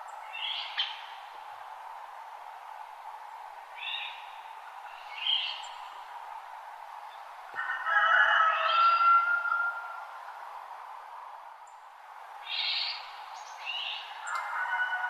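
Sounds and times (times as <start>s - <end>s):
birds singing: 0.0s - 1.3s, 3.8s - 6.0s, 12.5s - 15.0s
steady background hiss: 0.0s - 15.0s.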